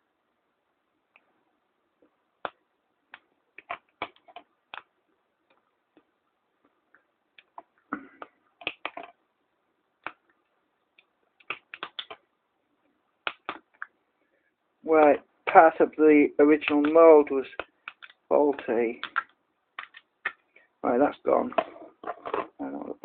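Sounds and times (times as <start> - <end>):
sharp clicks and small taps: 5.5 - 9.2, 10.0 - 12.3, 16.6 - 18.3, 19.0 - 20.4.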